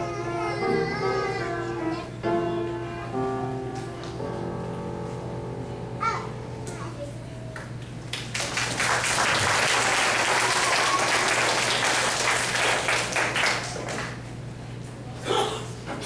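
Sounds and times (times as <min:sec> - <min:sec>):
audience applauding: 0:08.1 - 0:14.2.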